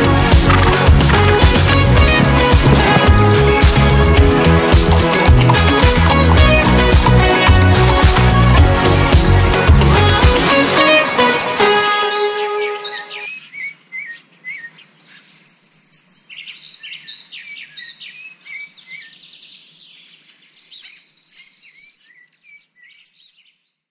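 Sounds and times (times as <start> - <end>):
birds chirping and trilling: 0.0 - 10.6, 12.4 - 23.9
background music: 0.0 - 13.3.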